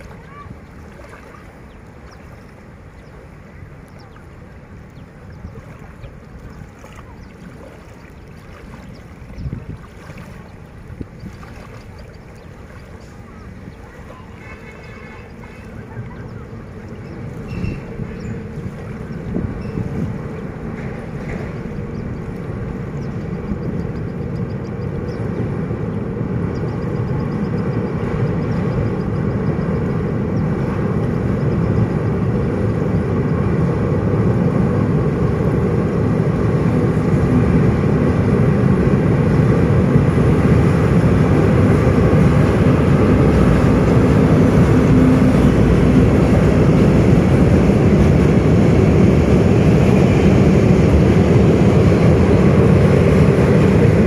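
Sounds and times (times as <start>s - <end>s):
freight train rumbling across bridge: 0.0s - 54.0s.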